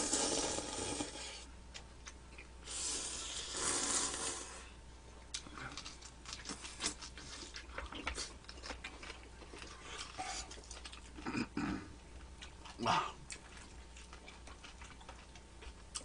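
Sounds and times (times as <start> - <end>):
people chewing with mouth smacks: 5.3 - 16.0.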